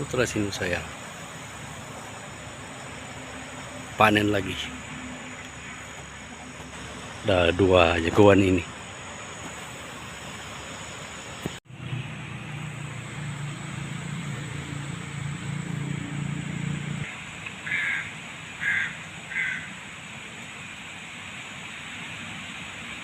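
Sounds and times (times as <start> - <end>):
outdoor hiss: 0.0 - 23.0
crow cawing: 17.6 - 19.8.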